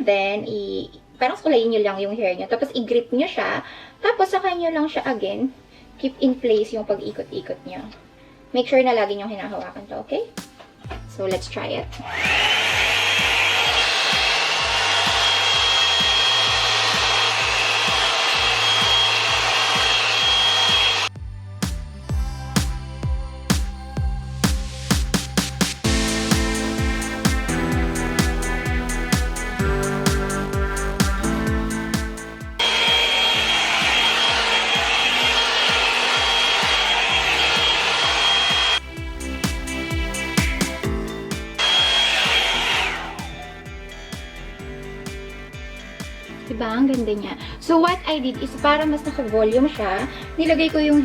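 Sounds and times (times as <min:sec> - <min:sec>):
background music with beat: 0:10.4 - 0:51.0
hot-air brush dryer running: 0:12.1 - 0:21.1, 0:32.0 - 0:38.8, 0:41.4 - 0:43.5.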